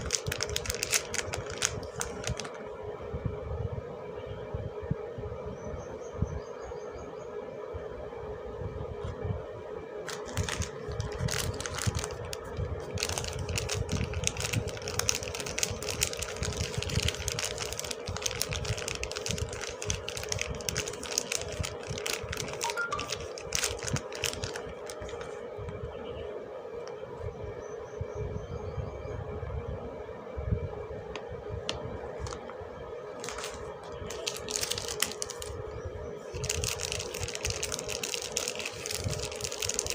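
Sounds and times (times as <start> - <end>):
packaging crinkling and crackling: 0.0 - 2.6, 10.0 - 25.8, 32.2 - 35.6, 36.3 - 39.9
steady low hum: 0.0 - 39.9.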